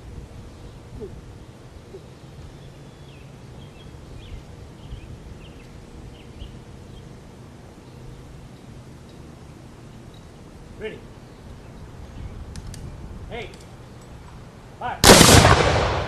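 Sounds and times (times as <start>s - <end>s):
small birds chirping faintly: 0.0s - 15.0s
steady low rumble: 14.5s - 16.0s.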